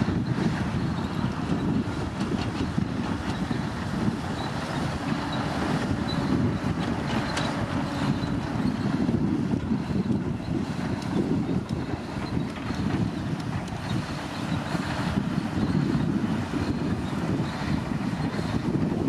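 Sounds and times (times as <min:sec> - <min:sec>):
bulldozer diesel engine running: 0:00.0 - 0:19.0.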